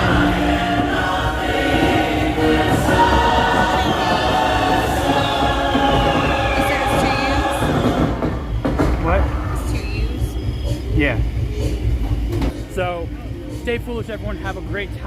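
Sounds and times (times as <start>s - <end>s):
choir singing: 0.0s - 8.6s.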